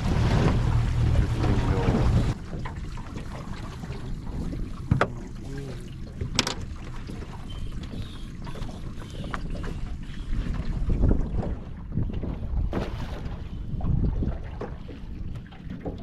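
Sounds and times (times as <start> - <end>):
wind buffeting microphone: 0.0 - 2.5, 7.0 - 16.0.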